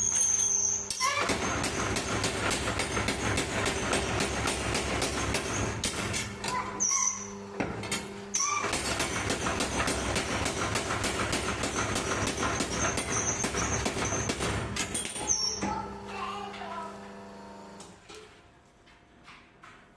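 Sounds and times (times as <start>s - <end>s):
power hammer striking: 1.0s - 6.6s, 7.6s - 15.8s.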